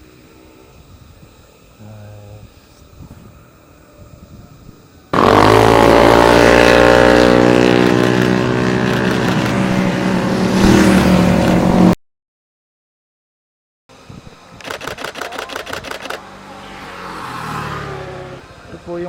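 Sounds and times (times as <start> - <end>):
motorcycle engine running: 5.1 - 12.0.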